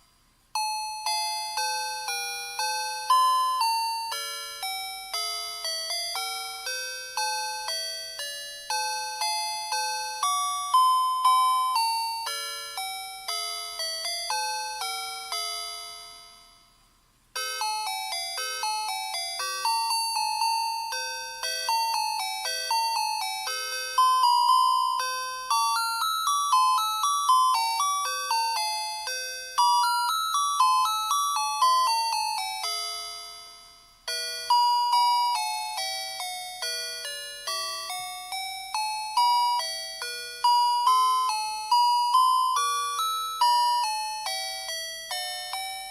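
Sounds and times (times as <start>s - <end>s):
electronic bell-tone melody: 0.6s - 16.7s, 17.4s - 45.9s.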